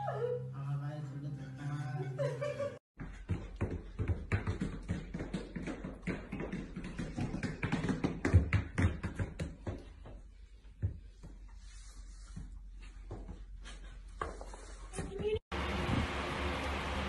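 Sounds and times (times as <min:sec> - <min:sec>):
dog boots tapping on floor: 0:03.0 - 0:10.2.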